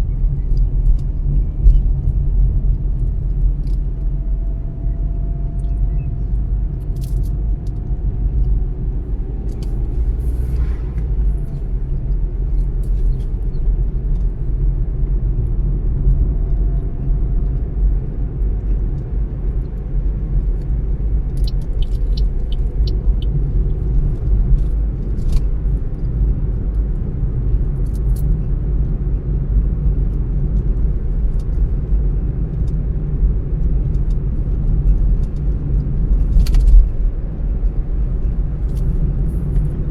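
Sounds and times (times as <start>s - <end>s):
road and engine rumble: 0.0s - 39.9s
faint drifting tone: 9.8s - 12.0s
light ticks: 20.3s - 25.5s.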